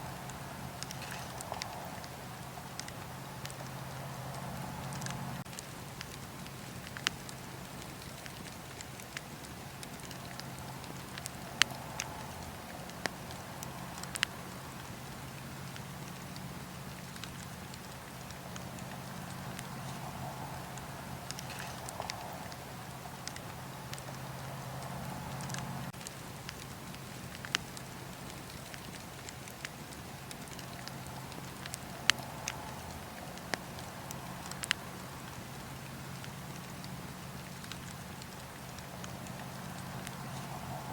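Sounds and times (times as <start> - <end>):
low hum: 0.0 - 5.5
fire crackling and popping: 0.0 - 40.9.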